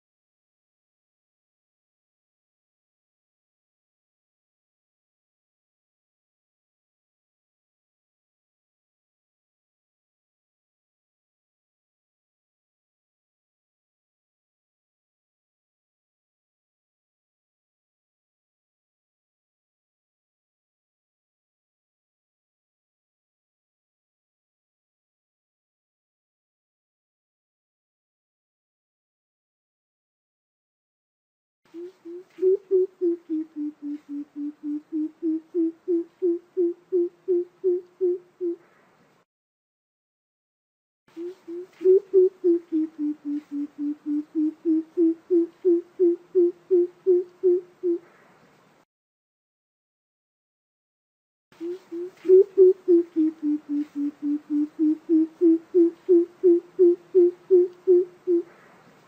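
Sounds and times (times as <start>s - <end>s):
bird deep hooting call: 31.8s - 38.6s, 41.2s - 48.1s, 51.6s - 58.6s.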